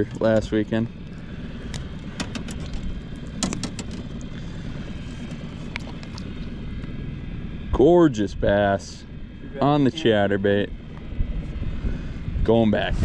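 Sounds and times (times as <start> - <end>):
engine running: 0.0 - 13.0
sharp clicks and knocks: 1.7 - 4.3.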